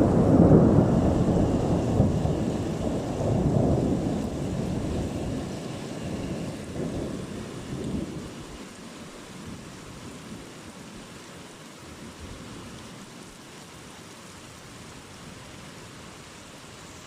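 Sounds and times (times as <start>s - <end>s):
thunder rolling: 0.0s - 8.3s
steady rain falling: 0.0s - 17.0s.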